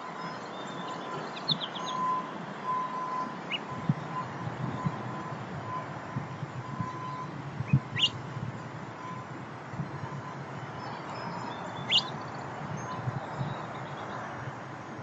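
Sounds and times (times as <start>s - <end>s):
distant traffic rumble: 0.0s - 15.0s
bird chirps sweeping upward: 0.2s - 2.2s, 7.9s - 8.2s, 10.8s - 13.7s.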